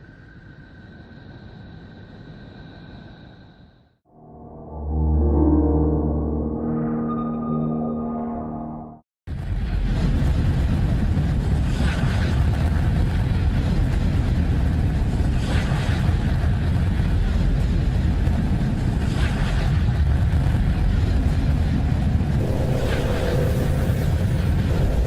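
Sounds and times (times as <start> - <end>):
dense steady rumble: 22.0 - 25.0
hissing swell: 22.4 - 25.0.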